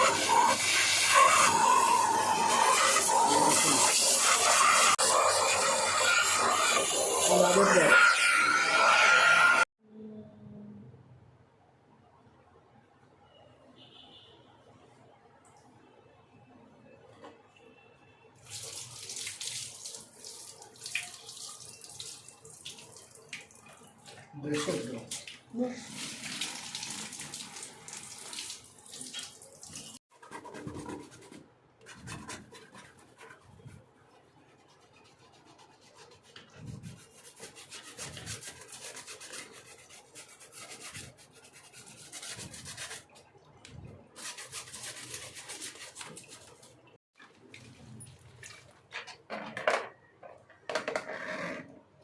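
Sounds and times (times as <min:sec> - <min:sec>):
brush scrubbing wet parts: 0:00.0 - 0:09.3, 0:29.0 - 0:43.3, 0:44.0 - 0:48.9.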